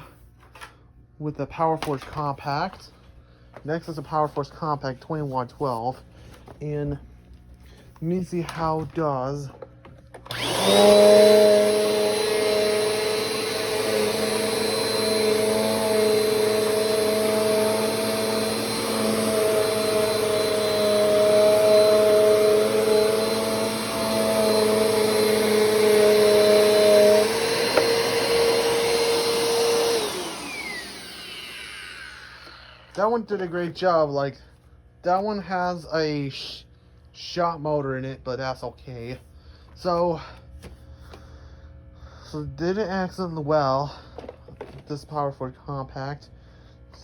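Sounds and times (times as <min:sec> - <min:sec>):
upright vacuum motor whine: 0:08.4 - 0:33.8.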